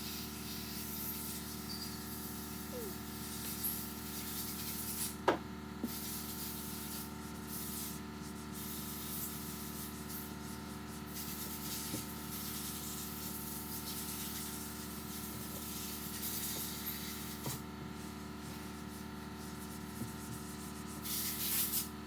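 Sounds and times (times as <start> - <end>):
steady shop hum: 5.2 - 5.8
cloth wiping on a workbench: 13.9 - 21.9.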